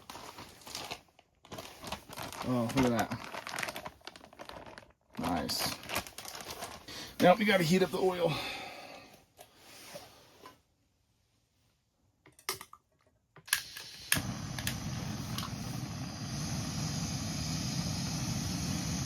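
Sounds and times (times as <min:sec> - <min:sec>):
gas stove burner rushing: 0:13.5 - 0:19.0.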